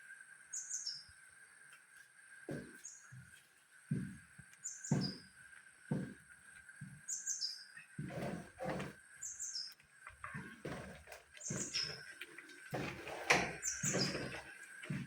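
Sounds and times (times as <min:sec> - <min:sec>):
bird chirping: 0:00.5 - 0:01.1, 0:04.6 - 0:05.3, 0:07.0 - 0:08.0, 0:09.2 - 0:09.8, 0:11.4 - 0:12.5, 0:13.5 - 0:14.5.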